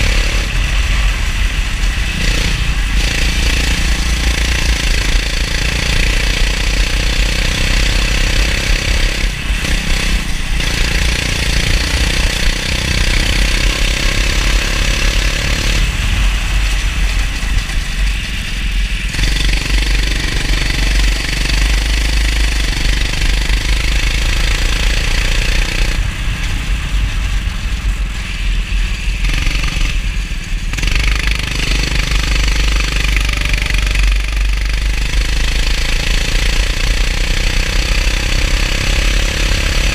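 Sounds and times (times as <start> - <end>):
heavy low rumble: 0.0 - 37.3
go-kart engine racing: 0.0 - 39.9.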